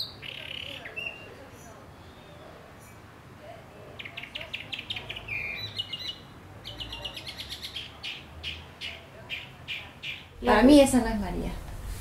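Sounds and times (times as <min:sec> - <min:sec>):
bird chirping: 0:00.0 - 0:03.0, 0:04.0 - 0:10.4
bird whistling: 0:04.8 - 0:06.2.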